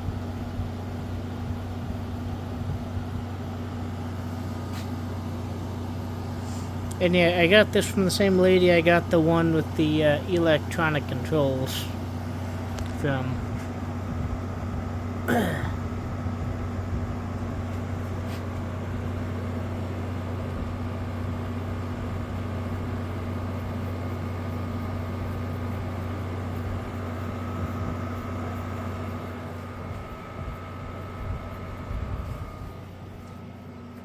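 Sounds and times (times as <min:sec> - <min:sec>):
air conditioner humming: 0:00.0 - 0:34.0.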